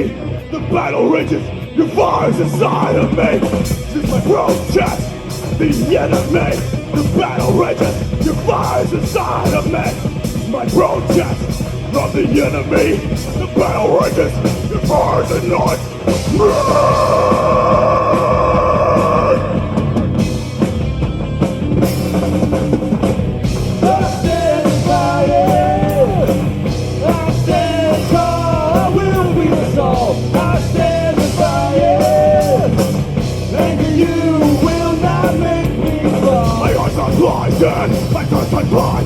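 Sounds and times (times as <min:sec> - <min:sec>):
bending melodic guitar line: 0:00.0 - 0:39.0
live metal band playing: 0:00.0 - 0:39.0.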